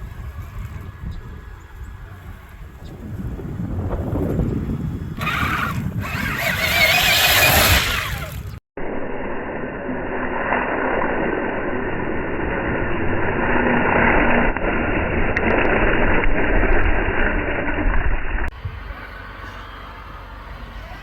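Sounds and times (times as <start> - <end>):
toy truck motor rushing: 4.7 - 8.6.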